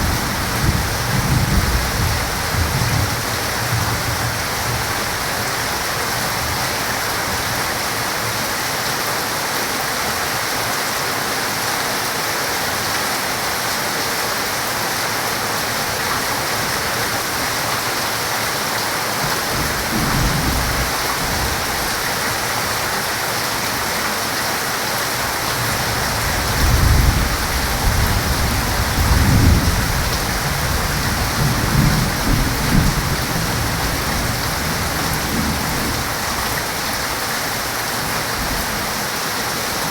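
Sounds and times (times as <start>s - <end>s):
thunder rumbling: 0.0s - 5.9s, 19.5s - 22.1s, 25.3s - 36.5s
heavy rain hissing: 0.0s - 39.9s.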